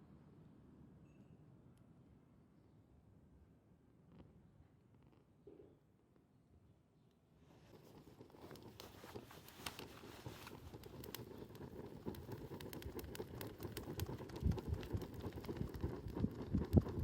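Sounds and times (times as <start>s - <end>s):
campfire crackling and popping: 7.8s - 17.0s.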